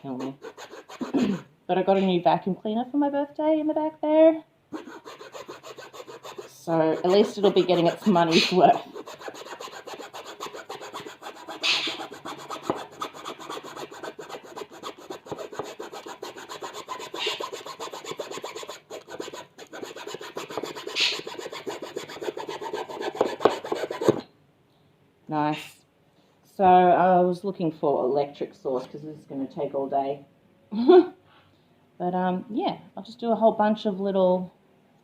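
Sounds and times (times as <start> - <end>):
hand saw rasping through wood: 0.1 - 1.4, 4.8 - 24.2.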